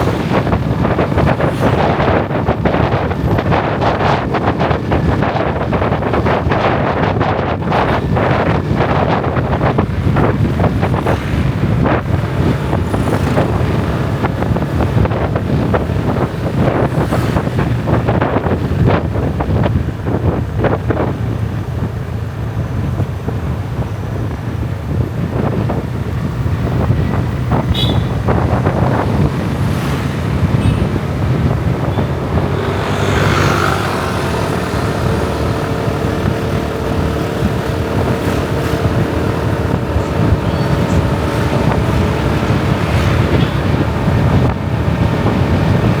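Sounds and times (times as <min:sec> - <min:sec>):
road noise: 0:00.0 - 0:46.0
traffic high tones: 0:00.0 - 0:46.0
wind buffeting microphone: 0:00.0 - 0:46.0
motorbike engine running: 0:25.4 - 0:46.0.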